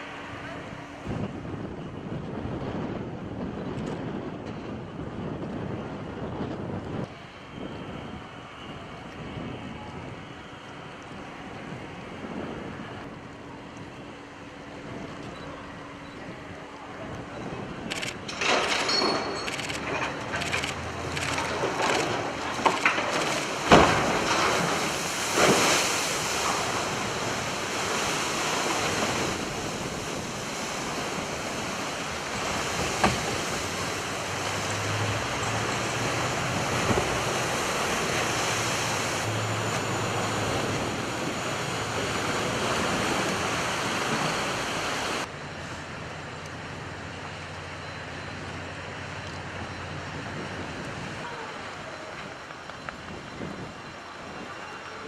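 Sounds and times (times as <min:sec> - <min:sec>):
sea water rushing: 0:00.0 - 0:01.6, 0:18.4 - 0:46.0
wind noise on microphone: 0:00.0 - 0:18.5, 0:49.4 - 0:54.6.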